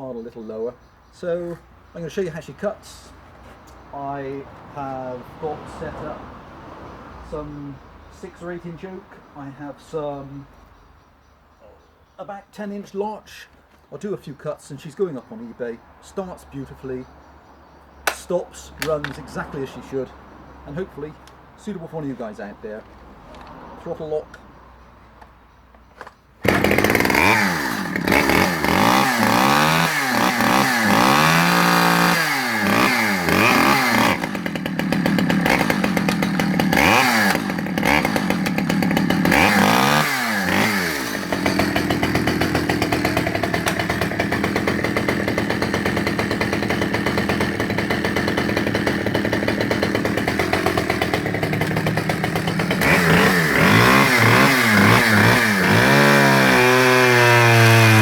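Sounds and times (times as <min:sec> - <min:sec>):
chainsaw starting and revving: 0:26.4 - 0:58.0.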